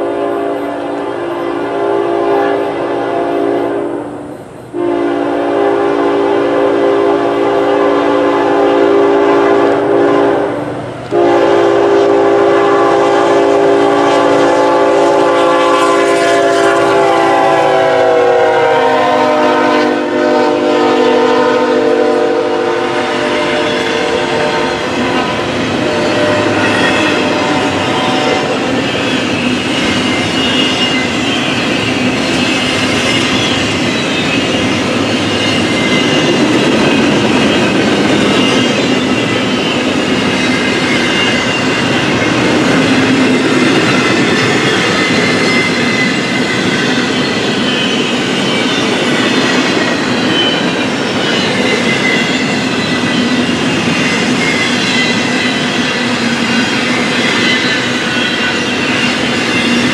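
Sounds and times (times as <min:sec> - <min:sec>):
train horn: 0:00.0 - 0:29.2
freight train rolling on rails: 0:00.0 - 0:59.9
high wheel squeal: 0:22.8 - 0:59.9.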